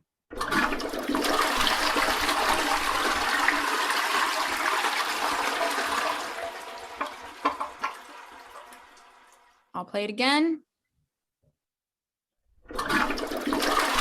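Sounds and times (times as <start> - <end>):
toilet flushing: 0.3 - 9.7, 12.7 - 14.0.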